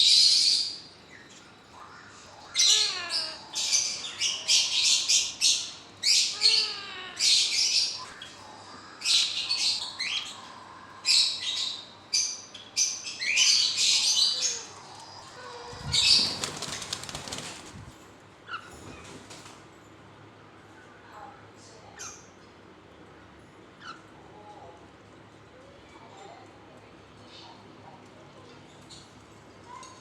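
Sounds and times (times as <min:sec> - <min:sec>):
parrots squawking: 0:02.0 - 0:08.4, 0:11.1 - 0:17.1
wing flapping: 0:15.7 - 0:18.0.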